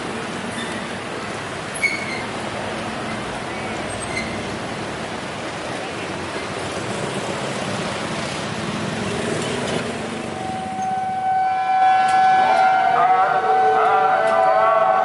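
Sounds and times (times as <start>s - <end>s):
train horn: 10.6s - 15.0s.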